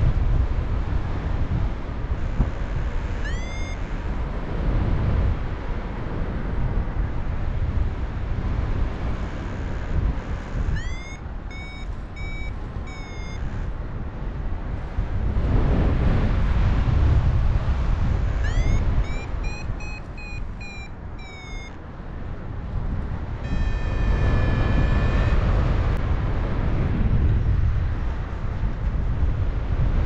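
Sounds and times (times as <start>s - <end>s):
wind rushing over microphone: 0.0s - 30.0s
variometer beeping: 2.3s - 3.9s, 9.5s - 13.7s, 18.2s - 21.8s, 23.4s - 25.9s.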